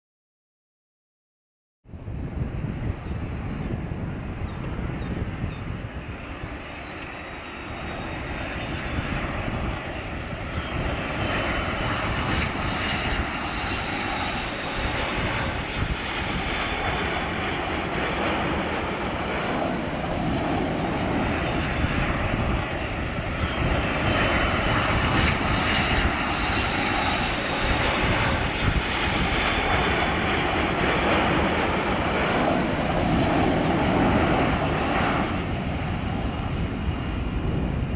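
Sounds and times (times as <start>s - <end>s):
jet engines rushing: 2.0s - 37.9s.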